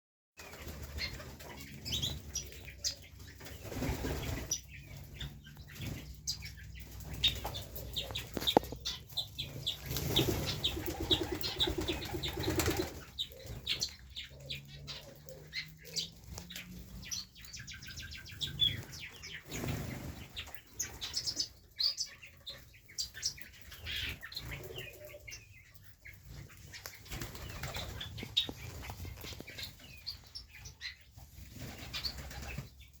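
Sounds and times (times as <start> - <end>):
bird chirps and calls: 0.4 - 33.0
pigeon wings flapping: 9.8 - 13.1, 27.1 - 28.0.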